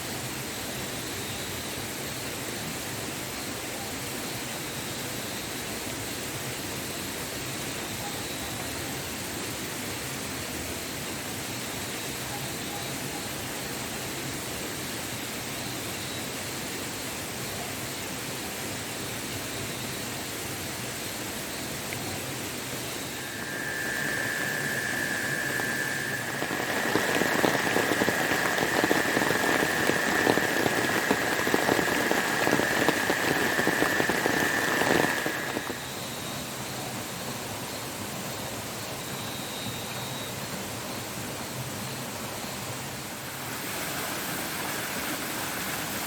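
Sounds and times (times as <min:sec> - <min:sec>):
high whistle: 0:23.0 - 0:36.4
waterfall rushing: 0:23.1 - 0:35.8, 0:43.2 - 0:46.0
dense crackling and spitting: 0:23.2 - 0:35.8.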